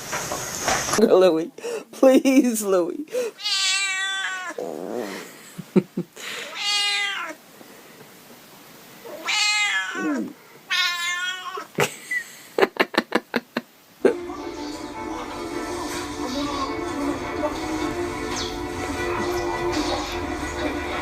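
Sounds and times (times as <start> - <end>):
cat meowing loudly: 3.4 - 4.7, 6.5 - 7.4, 9.0 - 11.7.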